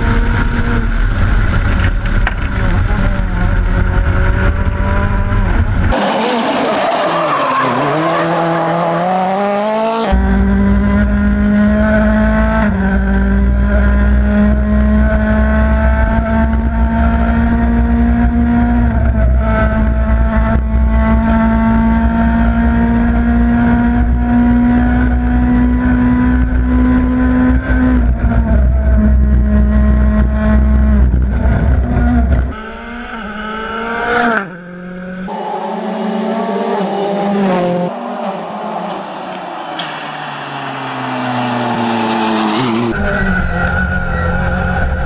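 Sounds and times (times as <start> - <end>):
rally car engine revving: 0.0 - 45.0.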